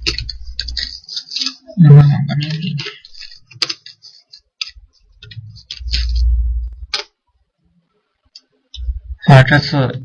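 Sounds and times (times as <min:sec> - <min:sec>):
low muffled rumble: 0:05.2 - 0:06.9, 0:08.8 - 0:09.2.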